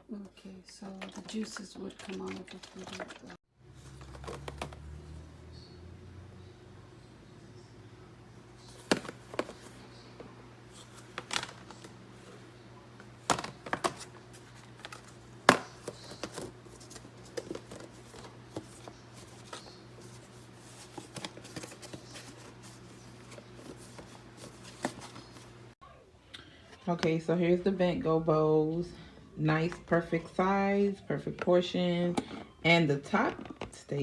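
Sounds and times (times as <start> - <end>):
plastic containers clicking: 3.8 - 4.8, 8.7 - 9.8, 13.2 - 14.1, 14.8 - 25.4.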